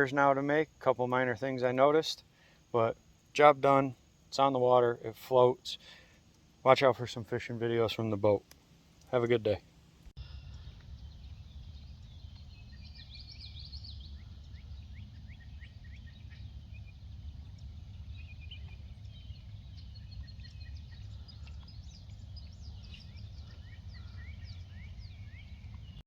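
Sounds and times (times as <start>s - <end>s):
small birds chirping: 5.8s - 26.0s
low background rumble: 6.0s - 26.0s.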